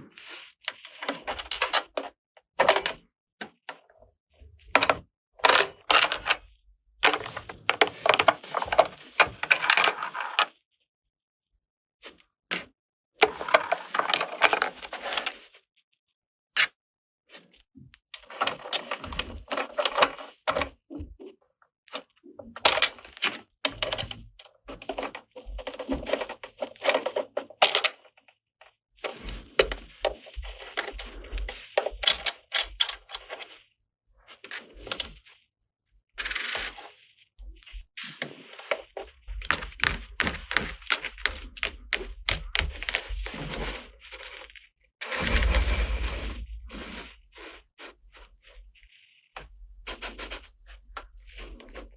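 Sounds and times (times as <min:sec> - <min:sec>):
rustling: 0:36.3 - 0:49.2.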